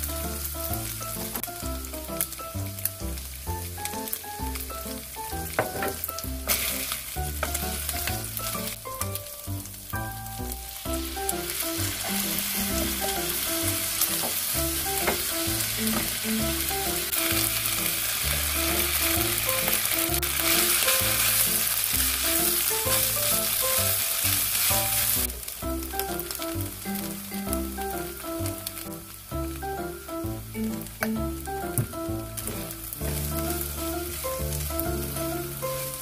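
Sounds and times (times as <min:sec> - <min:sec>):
rice sizzling and stirred in wok: 0:00.0 - 0:31.0, 0:31.6 - 0:36.0
water splashing into wok: 0:03.0 - 0:27.1.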